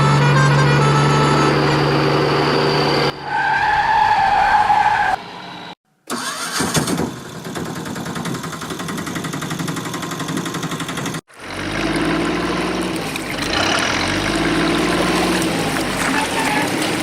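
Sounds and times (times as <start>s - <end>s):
engine running with fast rattle: 6.1s - 17.0s.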